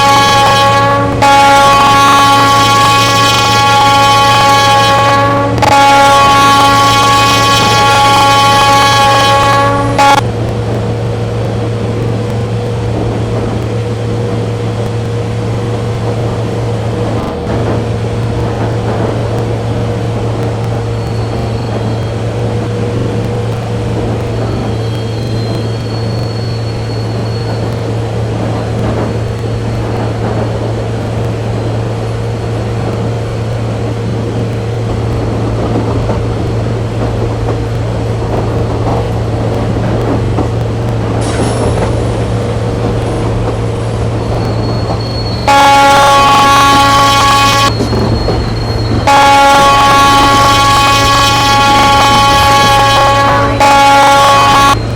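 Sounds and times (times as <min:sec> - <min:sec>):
loud train horn: 0:00.0 - 0:10.3, 0:41.2 - 0:48.1, 0:48.7 - 0:54.9
train rumbling: 0:00.0 - 0:54.9.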